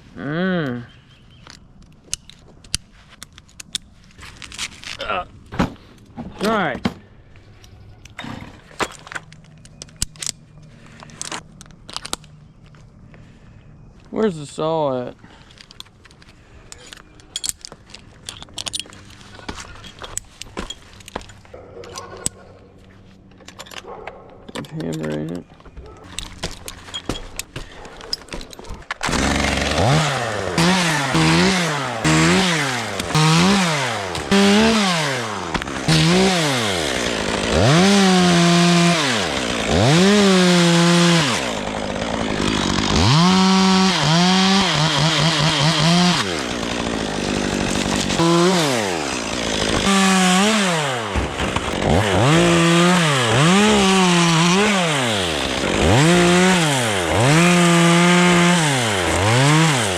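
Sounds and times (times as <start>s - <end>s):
chainsaw revving: 29.0s - 59.9s.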